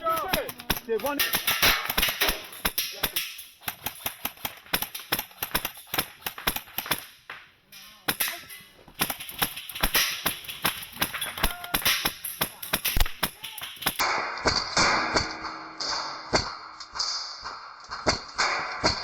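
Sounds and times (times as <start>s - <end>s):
airsoft rifles firing: 0.0s - 7.4s, 8.0s - 14.1s.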